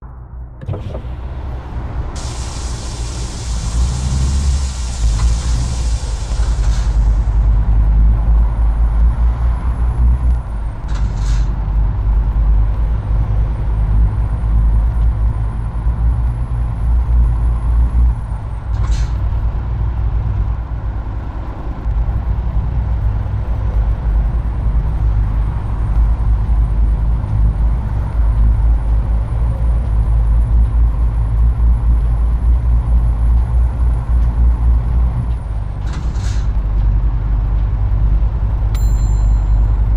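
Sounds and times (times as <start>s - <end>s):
truck diesel engine rumbling: 0.0s - 39.9s
air brake hiss: 2.1s - 7.5s.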